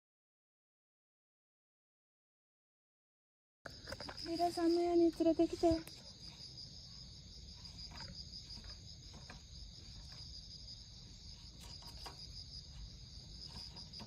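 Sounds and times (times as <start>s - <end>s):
insects trilling: 3.7s - 14.0s.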